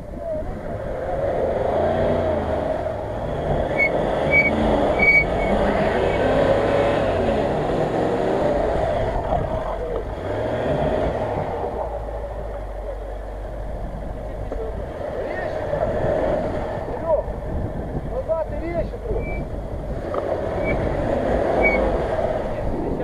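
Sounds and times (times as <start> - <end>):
car engine revving: 0.0 - 23.0
short high squeaks: 3.7 - 5.6, 19.1 - 19.5, 20.6 - 20.8, 21.6 - 21.9.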